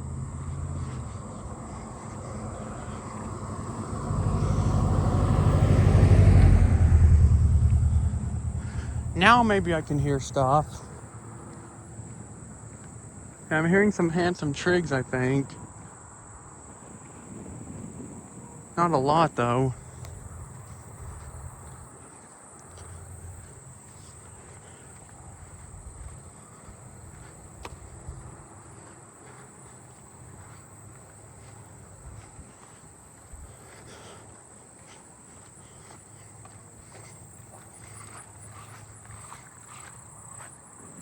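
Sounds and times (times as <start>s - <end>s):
crickets trilling: 0.0s - 41.0s
low rumble: 3.6s - 11.2s.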